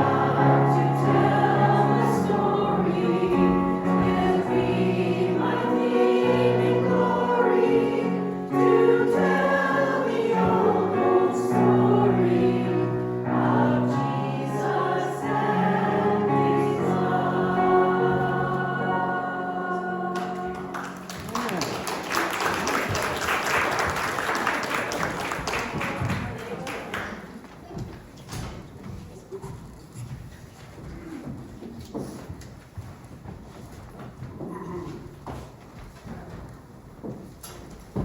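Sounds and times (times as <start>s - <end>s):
choir singing a hymn: 0.0s - 21.1s.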